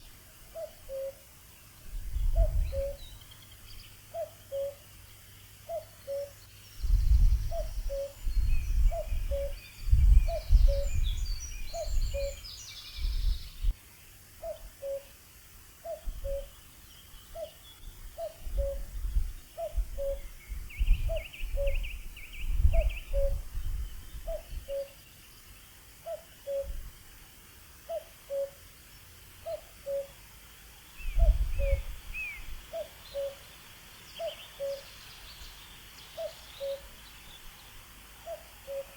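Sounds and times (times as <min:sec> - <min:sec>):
cuckoo calling: 0:00.0 - 0:01.2, 0:02.3 - 0:03.2, 0:04.1 - 0:04.8, 0:05.7 - 0:06.4, 0:07.5 - 0:08.2, 0:08.8 - 0:09.6, 0:11.7 - 0:12.5, 0:14.4 - 0:15.2, 0:15.8 - 0:16.6, 0:18.2 - 0:18.9, 0:19.6 - 0:20.3, 0:22.7 - 0:23.4, 0:24.3 - 0:25.0, 0:26.0 - 0:26.8, 0:27.9 - 0:28.6, 0:29.4 - 0:30.2, 0:31.1 - 0:33.5, 0:34.1 - 0:34.9, 0:36.1 - 0:37.0, 0:38.2 - 0:38.9
small birds twittering: 0:00.0 - 0:13.8, 0:15.8 - 0:26.7, 0:30.8 - 0:38.9.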